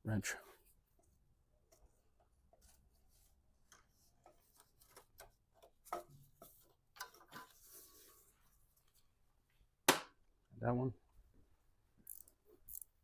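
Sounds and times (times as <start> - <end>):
ratcheting wrench clicking: 12.0 - 13.0.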